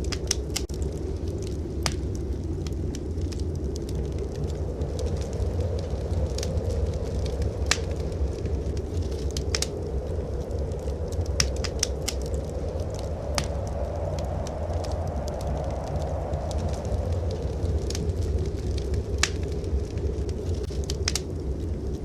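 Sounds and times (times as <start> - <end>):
sharp pops of burning wood: 0.0 - 0.7, 1.3 - 2.8, 7.2 - 9.7, 10.8 - 13.6, 18.8 - 19.6, 20.4 - 21.3
blizzard wind rushing: 0.0 - 22.0
wood fire crackling: 0.0 - 22.0.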